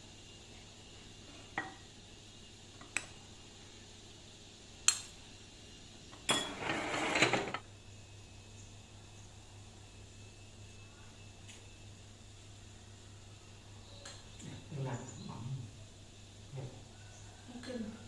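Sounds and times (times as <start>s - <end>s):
dishes and utensils clinking: 6.2s - 7.6s
dishes clattering: 6.2s - 7.6s.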